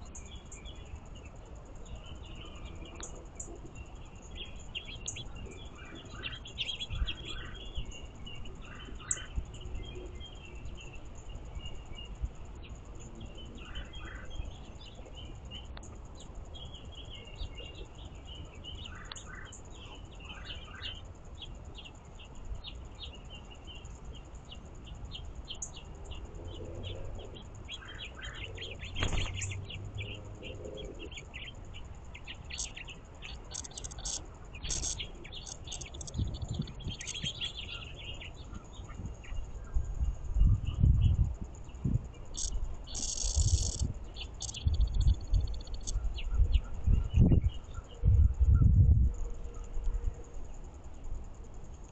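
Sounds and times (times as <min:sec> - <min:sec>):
songbirds chirping: 0:00.0 - 0:51.9
sharp click: 0:33.5 - 0:37.3, 0:42.4 - 0:46.0.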